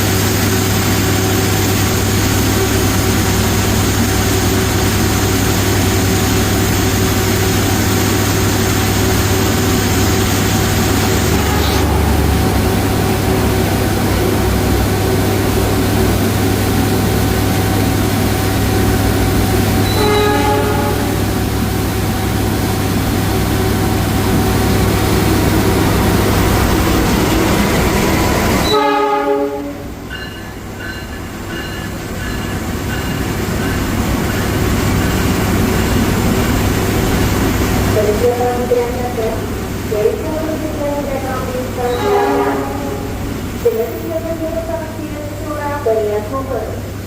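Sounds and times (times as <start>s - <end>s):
freight train rumble: 0.0s - 47.0s
train horn blasts: 11.2s - 12.4s, 19.8s - 21.4s, 28.6s - 30.0s, 41.8s - 43.4s.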